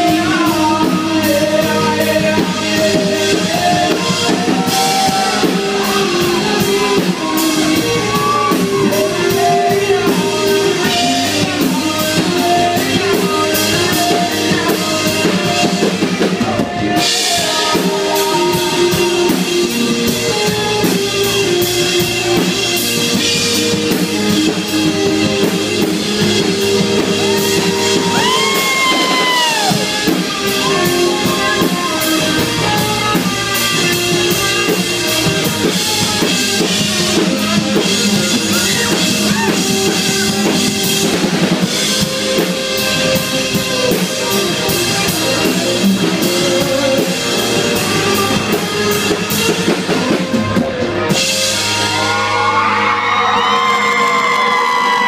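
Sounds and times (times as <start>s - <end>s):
bent electric guitar notes: 0.0s - 55.0s
drum kit: 0.0s - 55.0s
rock band playing: 0.0s - 55.0s.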